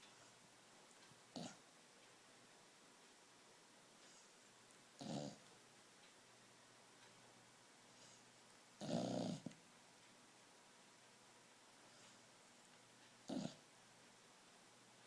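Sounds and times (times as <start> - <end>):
dog snoring: 1.3 - 1.6, 5.0 - 5.4, 8.8 - 9.6, 13.2 - 13.6.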